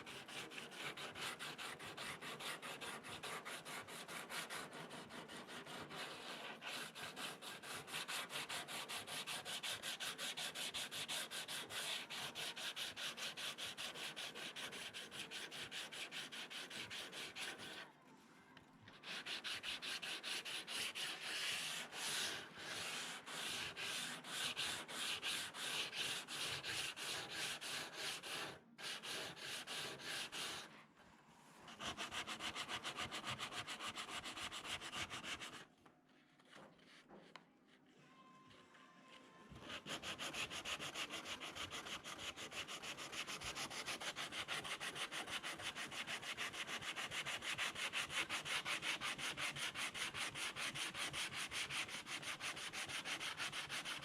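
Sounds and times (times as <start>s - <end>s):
sandpaper scratching: 19.0s - 30.7s, 39.6s - 54.0s.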